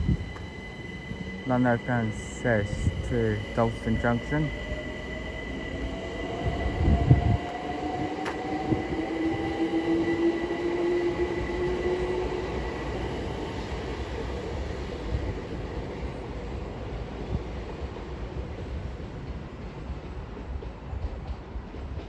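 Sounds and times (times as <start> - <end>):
electric train motors whining: 0.0 - 12.9.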